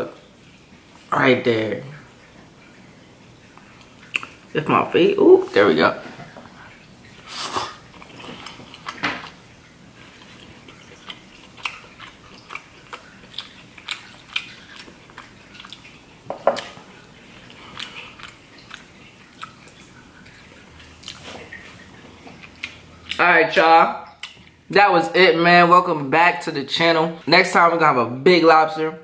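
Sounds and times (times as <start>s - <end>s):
chewing crab meat: 3.4s - 4.6s, 6.6s - 23.2s, 24.0s - 24.7s.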